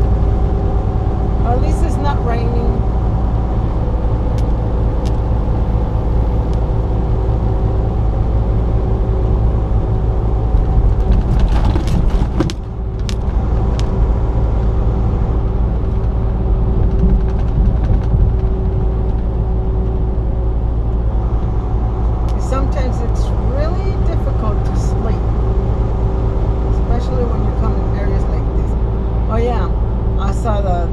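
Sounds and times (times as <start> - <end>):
truck engine and road drone: 0.0 - 30.9
sharp clicks and knocks: 15.8 - 20.0.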